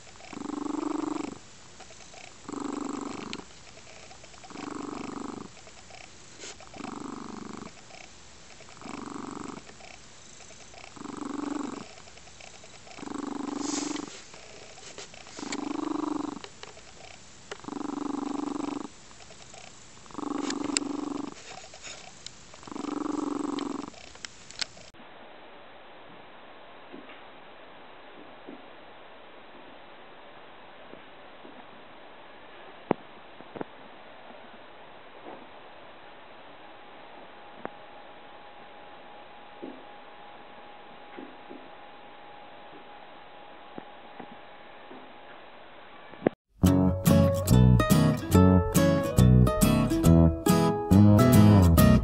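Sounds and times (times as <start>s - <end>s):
cat purring: 0.0s - 24.7s.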